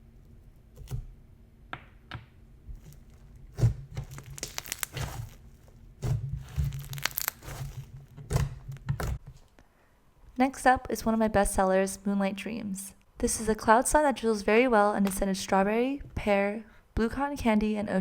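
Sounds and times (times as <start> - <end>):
slime crackling and popping: 2.8 - 9.2.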